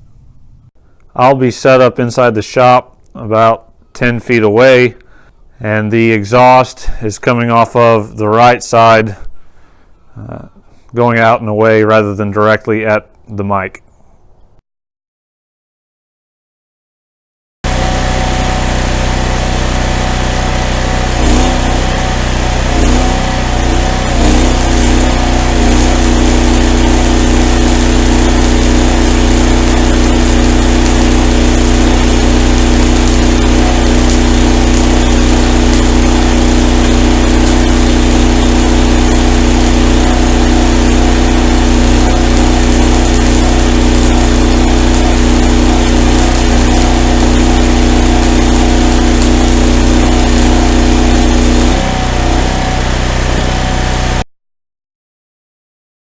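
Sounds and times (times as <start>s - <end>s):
welder engine running under load: 17.7s - 54.2s.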